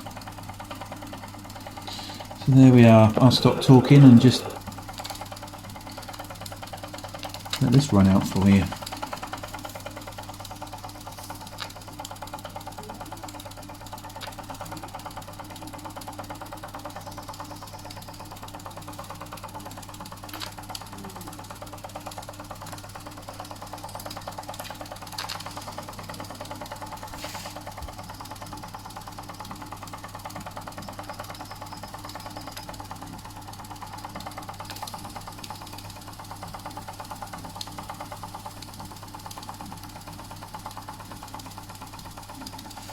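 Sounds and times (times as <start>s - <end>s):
low steady hum: 1.8s - 9.5s.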